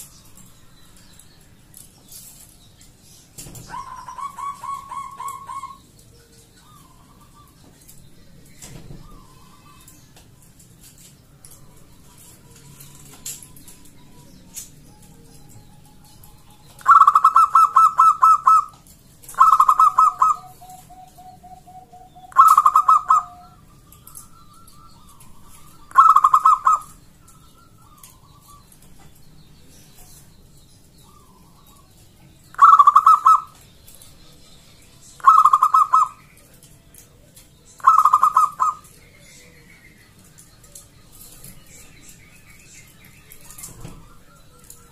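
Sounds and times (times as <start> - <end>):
dove cooing: 3.7 - 5.8, 14.5 - 28.6, 32.5 - 33.6, 35.2 - 36.2, 37.8 - 38.9.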